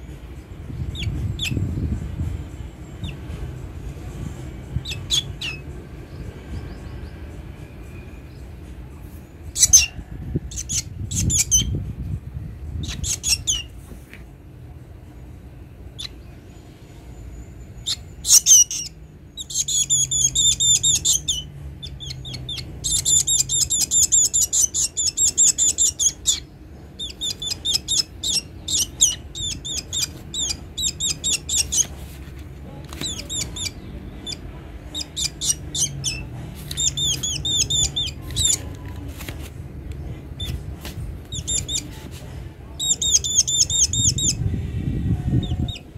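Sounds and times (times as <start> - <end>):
bird chirping rapidly: 0.8 - 1.6, 4.8 - 7.3, 9.5 - 11.8, 12.8 - 13.8, 17.7 - 31.9, 33.0 - 38.7, 41.3 - 41.9, 42.8 - 44.4.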